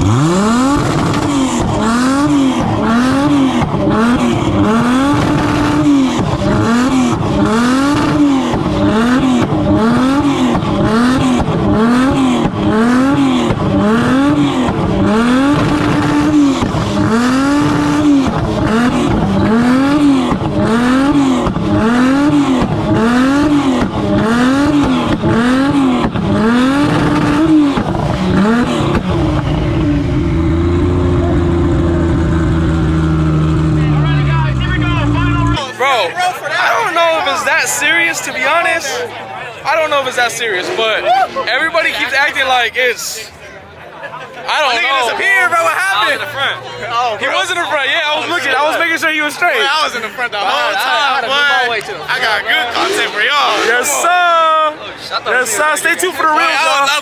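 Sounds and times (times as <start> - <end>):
car engine revving: 0.0 - 35.6.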